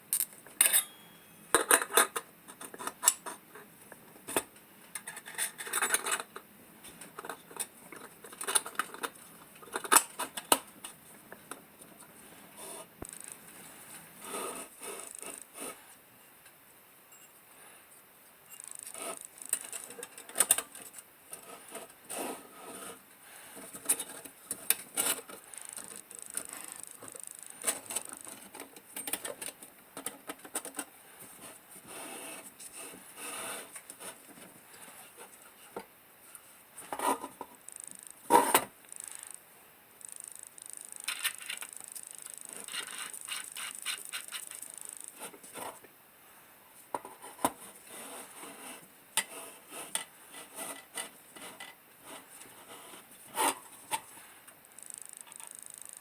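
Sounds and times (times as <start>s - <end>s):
light metal clicks and scrapes: 0.1s - 11.0s, 40.6s - 45.9s
ringing metal clinks: 0.6s - 1.5s.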